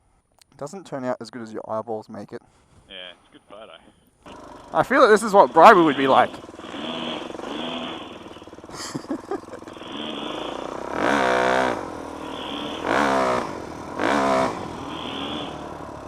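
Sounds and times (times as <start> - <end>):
dirt bike engine revving: 4.2 - 16.0.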